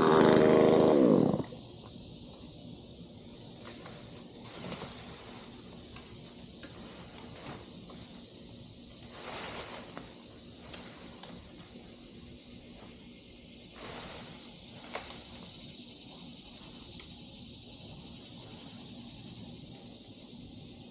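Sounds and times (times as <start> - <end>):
background hiss: 0.0 - 20.9
soft rustle: 3.6 - 8.4, 9.0 - 13.1, 13.7 - 15.7.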